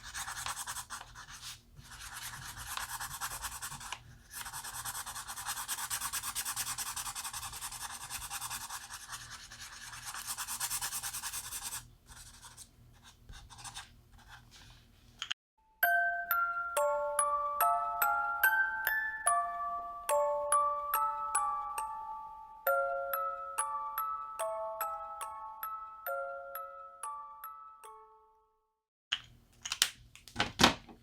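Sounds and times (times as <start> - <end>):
marker scratching across paper: 0.0 - 14.7.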